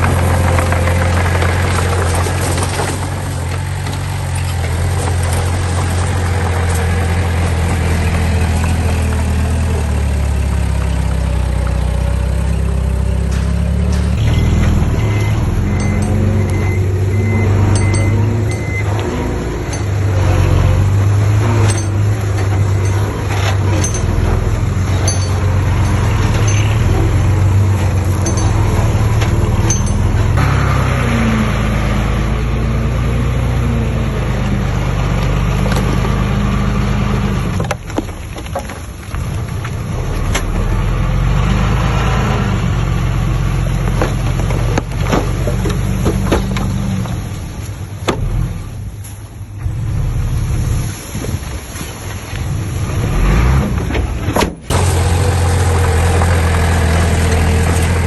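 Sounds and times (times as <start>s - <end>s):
heavy machinery diesel engines: 0.0s - 58.0s
metal clanks and knocks: 13.1s - 31.2s.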